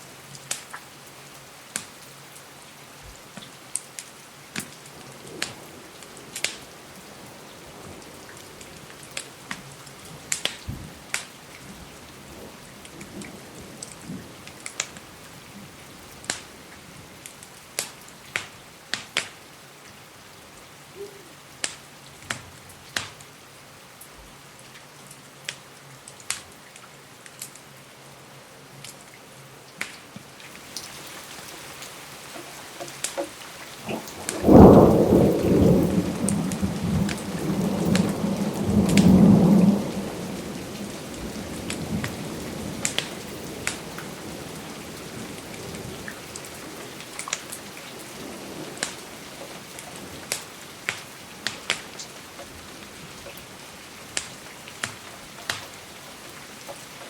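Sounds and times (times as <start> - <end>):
steady rain: 0.0 - 57.0
thunder rumbling: 5.0 - 16.4, 33.7 - 50.6.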